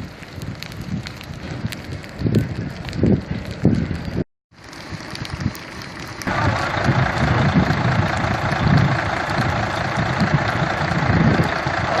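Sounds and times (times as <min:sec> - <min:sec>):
vehicle engine running: 0:04.7 - 0:12.0
rushing noise: 0:04.9 - 0:12.0.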